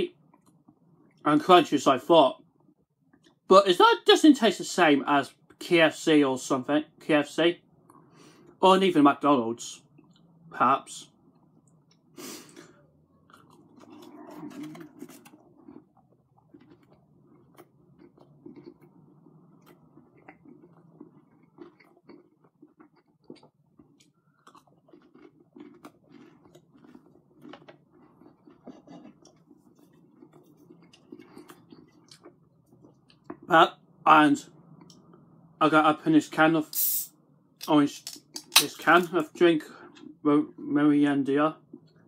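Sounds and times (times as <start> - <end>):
person chewing crunchy food: 11.2 - 33.5.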